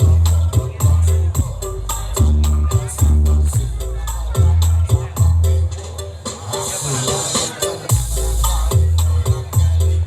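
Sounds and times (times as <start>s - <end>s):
heavy booming bass: 0.0s - 5.7s, 7.9s - 10.0s
electronic dance music: 0.0s - 10.0s.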